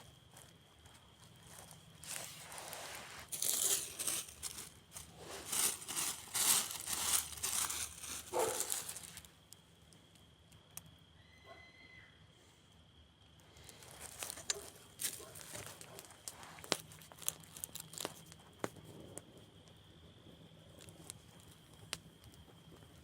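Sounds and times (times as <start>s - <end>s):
dry material crumpling and crackling: 1.4s - 9.3s, 13.6s - 19.2s.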